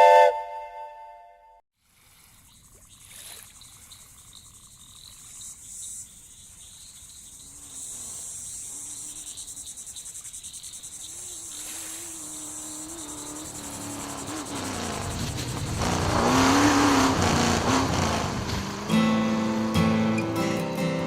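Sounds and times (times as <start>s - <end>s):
crickets chirping: 2.2s - 17.9s.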